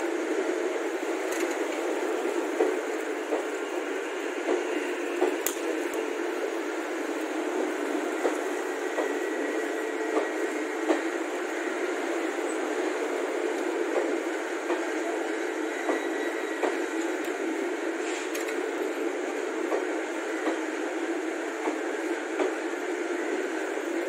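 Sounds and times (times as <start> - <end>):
train wheels rumbling on rail: 0.0 - 24.0
wheels clicking over rail joints: 1.2 - 3.6, 4.4 - 6.1.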